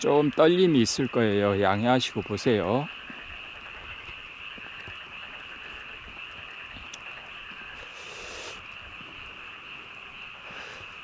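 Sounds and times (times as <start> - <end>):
frogs calling: 0.0 - 11.0.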